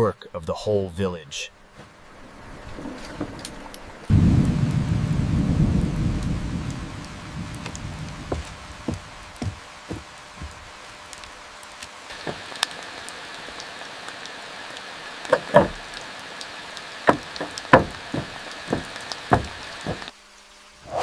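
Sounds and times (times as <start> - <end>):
steady rain: 1.6 - 21.0
sharp knocks and taps: 8.2 - 10.6, 12.2 - 12.8, 15.3 - 16.0, 17.1 - 20.1.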